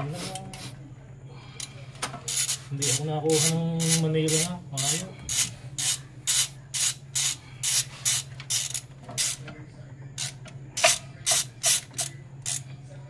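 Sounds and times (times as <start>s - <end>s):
ratchet wrench rasping: 2.3s - 9.4s, 10.2s - 12.7s.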